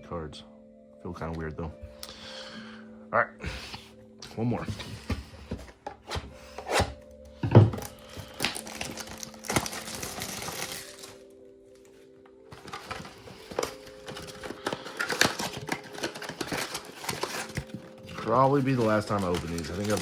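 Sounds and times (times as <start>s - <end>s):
soft background music: 0.0s - 20.0s
foil wrapper crinkling and tearing: 7.9s - 11.3s, 12.5s - 20.0s.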